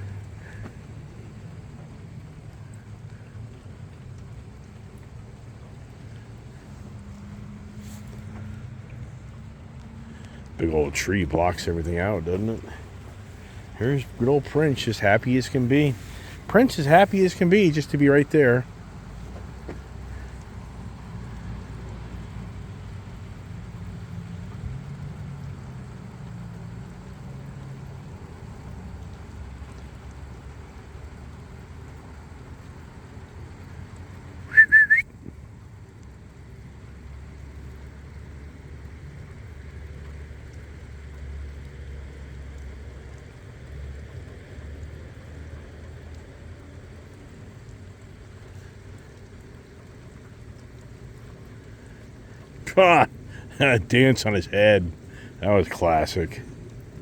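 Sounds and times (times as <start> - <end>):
steady rain: 0.0 - 57.0
person whistling: 34.5 - 35.0.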